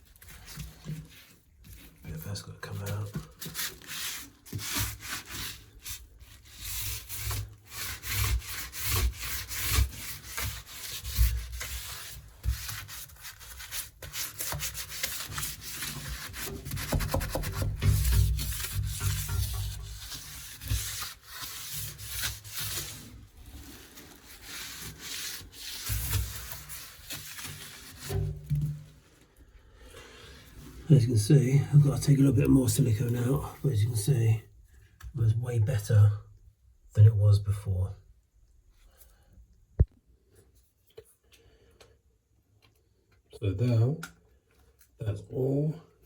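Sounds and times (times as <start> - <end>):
sealant scraping and rubbing: 2.7 - 29.0.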